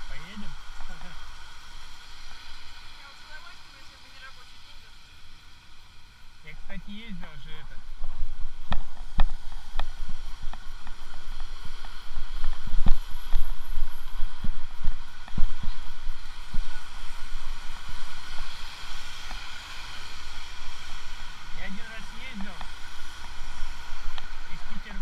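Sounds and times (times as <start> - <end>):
steady wind rushing: 0.0 - 25.0
wind buffeting microphone: 6.6 - 25.0.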